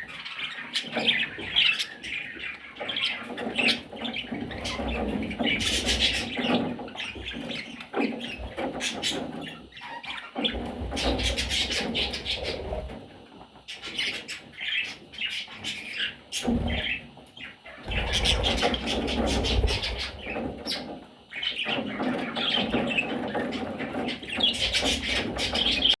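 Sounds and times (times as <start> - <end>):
parrots chirping and chattering: 0.0 - 26.0.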